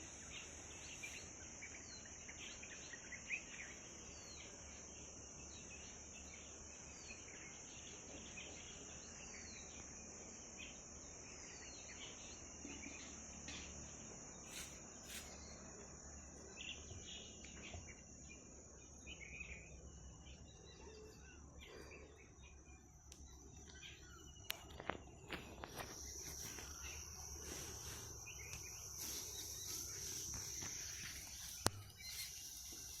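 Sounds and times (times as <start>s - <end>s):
high-pitched insect chorus: 0.0s - 33.0s
bird chirps: 14.5s - 33.0s.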